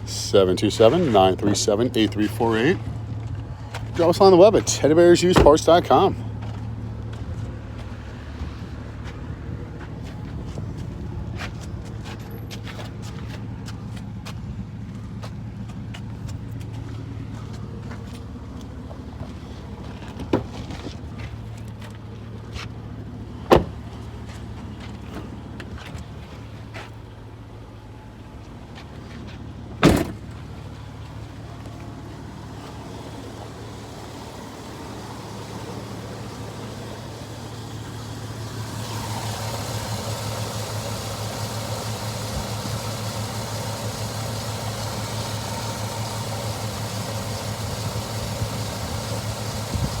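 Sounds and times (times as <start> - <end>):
car engine idling: 0.0 - 50.0
door shutting thump: 23.5 - 23.8, 29.8 - 30.2.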